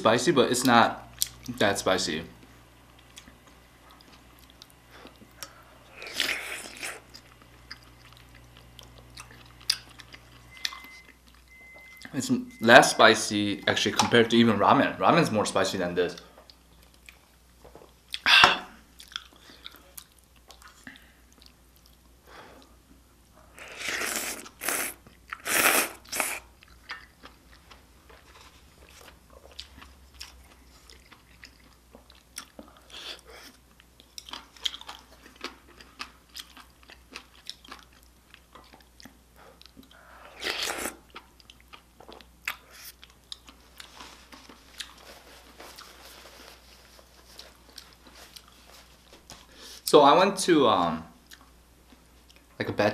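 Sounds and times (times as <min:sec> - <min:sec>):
person chewing food: 0:03.0 - 0:12.1, 0:18.9 - 0:22.8, 0:23.4 - 0:49.8, 0:51.3 - 0:52.5.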